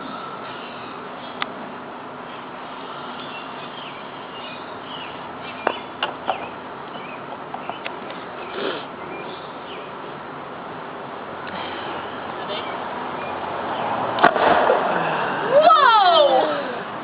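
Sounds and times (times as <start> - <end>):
small birds chirping: 2.2 - 10.2, 11.5 - 14.0.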